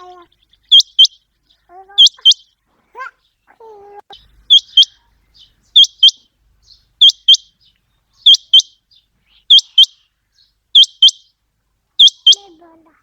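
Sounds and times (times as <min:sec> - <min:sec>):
quail calling: 0:00.0 - 0:02.5, 0:04.1 - 0:06.3, 0:07.0 - 0:11.3, 0:12.0 - 0:13.0.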